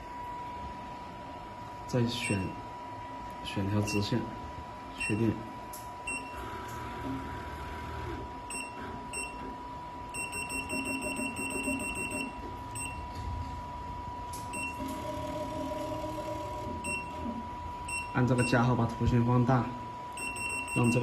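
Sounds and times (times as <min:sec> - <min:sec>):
keypad beeps: 0:06.1 - 0:06.4, 0:08.5 - 0:09.4, 0:10.1 - 0:13.1, 0:14.4 - 0:15.0, 0:16.8 - 0:17.2, 0:20.2 - 0:21.0.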